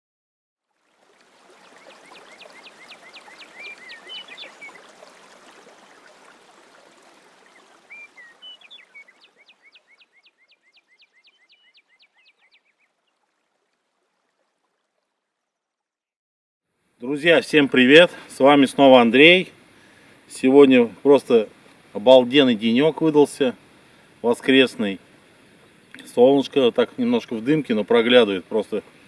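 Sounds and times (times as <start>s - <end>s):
songbird singing: 1.5s - 6.2s, 7.3s - 13.2s
outdoor rushing hiss: 17.2s - 26.7s.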